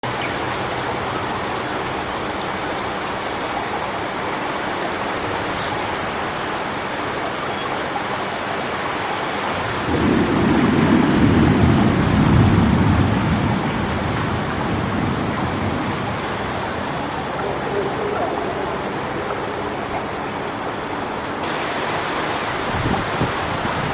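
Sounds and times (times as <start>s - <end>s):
wind rushing through palms: 0.0s - 23.9s
rumble of thunder: 9.6s - 20.4s.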